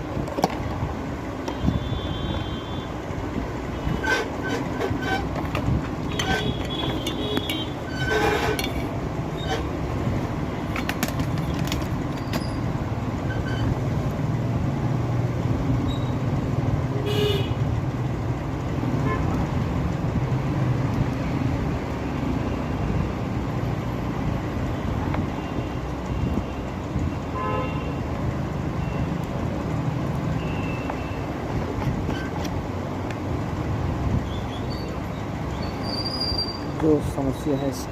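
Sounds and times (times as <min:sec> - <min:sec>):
road traffic rumble: 0:00.0 - 0:37.9.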